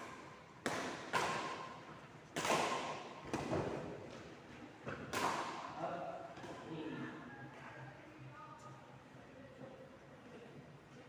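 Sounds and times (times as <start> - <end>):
ball hits echoing in a hall: 0.0 - 7.0.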